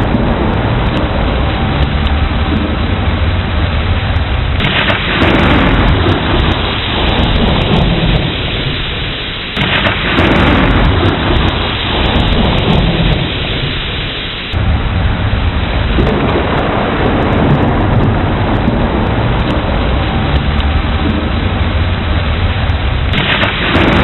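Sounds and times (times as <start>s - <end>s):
rolling thunder: 0.0s - 24.0s
steady rain: 0.0s - 24.0s.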